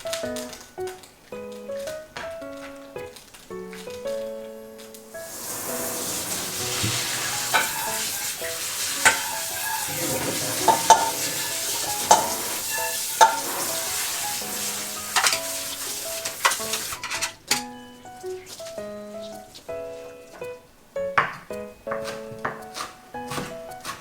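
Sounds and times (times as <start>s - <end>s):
light background music: 0.0s - 24.0s
boiling water bubbling: 5.2s - 17.0s.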